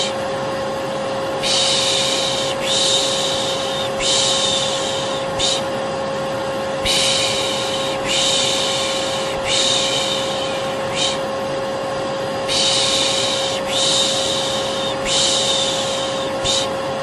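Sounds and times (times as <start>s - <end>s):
vacuum cleaner motor whining: 0.0s - 17.0s
person shushing: 1.4s - 5.7s, 6.8s - 11.3s, 12.5s - 16.8s.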